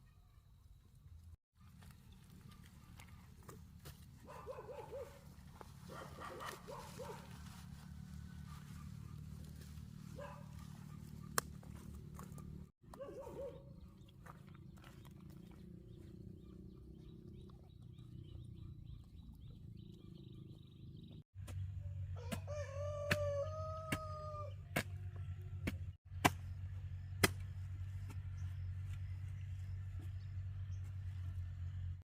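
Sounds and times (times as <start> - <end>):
rooster crowing: 22.2 - 24.6.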